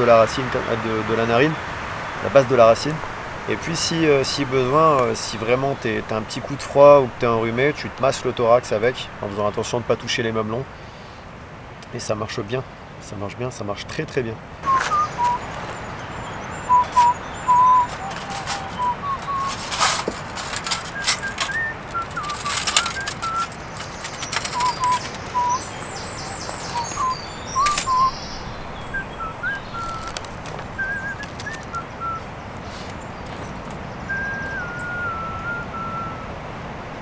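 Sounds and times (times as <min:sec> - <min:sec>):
cloth rustling: 0:14.6 - 0:28.1, 0:29.4 - 0:33.8
songbird whistling: 0:14.6 - 0:36.3.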